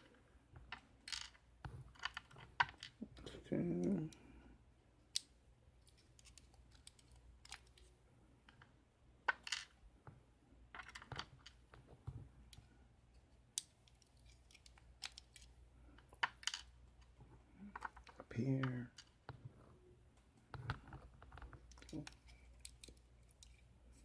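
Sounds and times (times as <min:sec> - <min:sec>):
metal clicks of lock parts: 0:13.6 - 0:15.5.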